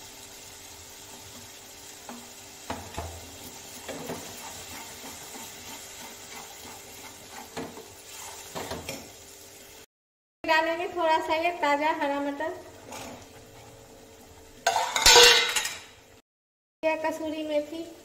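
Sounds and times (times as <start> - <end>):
paste frying in oil: 0.0 - 9.9
spatula scraping and knocking pan: 1.1 - 9.1, 14.7 - 15.7.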